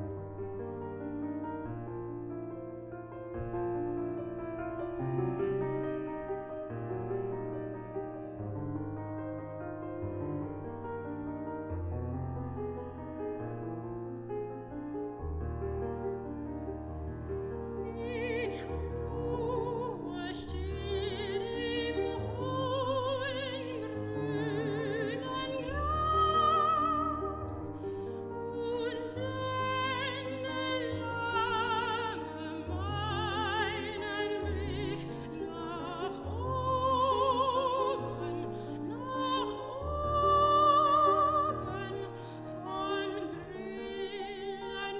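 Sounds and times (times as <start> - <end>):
piano accompaniment: 0.0 - 44.9
soprano singing with vibrato: 17.8 - 44.9.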